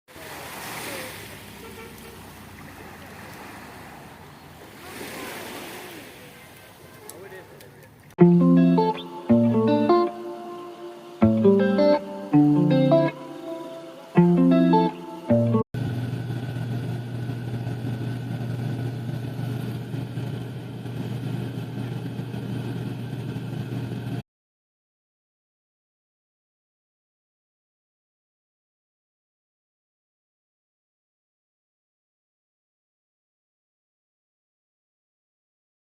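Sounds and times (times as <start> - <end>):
waves and surf rushing: 0.1 - 7.7, 8.8 - 15.6
low engine drone: 8.2 - 24.2.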